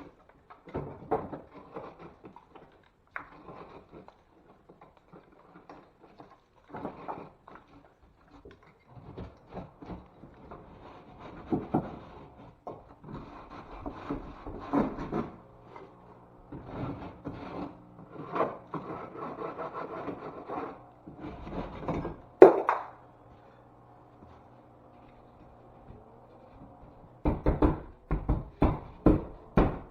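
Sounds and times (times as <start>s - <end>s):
hand tool scraping drywall: 0.0s - 22.6s.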